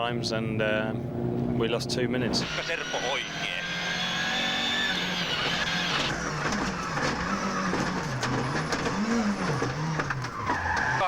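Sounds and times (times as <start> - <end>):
rally car engine revving: 2.2 - 11.0.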